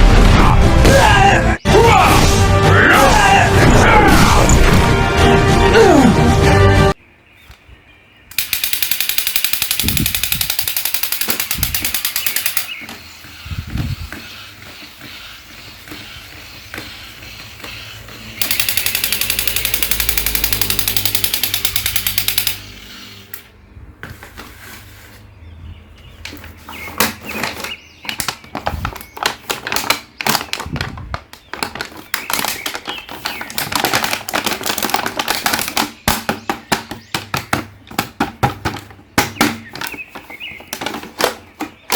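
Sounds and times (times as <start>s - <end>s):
fast rattling clatter: 8.3s - 12.8s, 18.4s - 22.7s
irregular clicks and taps: 8.3s - 13.0s, 18.4s - 22.7s.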